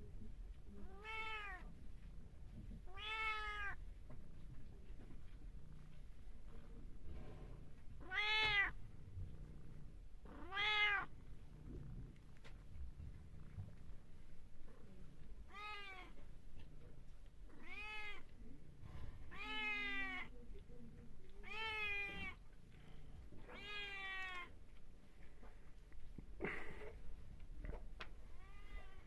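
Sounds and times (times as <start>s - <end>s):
cat meowing: 0.8s - 1.7s, 2.9s - 3.8s, 8.0s - 8.8s, 10.3s - 11.1s, 15.5s - 16.2s, 17.5s - 18.3s, 19.3s - 20.3s, 21.4s - 22.4s, 23.5s - 24.6s, 28.4s - 29.0s.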